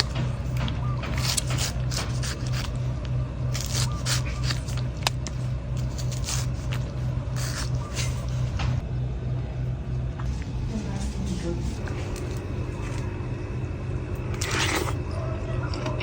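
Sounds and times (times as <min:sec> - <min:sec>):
knife scraping coconut: 0:00.0 - 0:08.6
low pulsing hum: 0:00.0 - 0:16.0.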